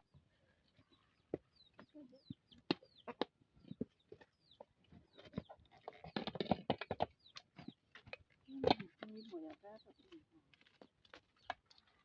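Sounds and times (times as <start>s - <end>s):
chickens clucking: 1.8s - 3.8s.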